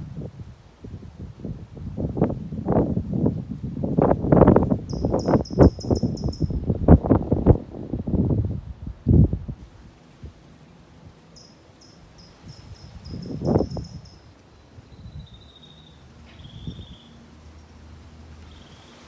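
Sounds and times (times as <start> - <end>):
small bird singing: 4.9 - 6.6, 11.4 - 17.8, 18.4 - 19.0.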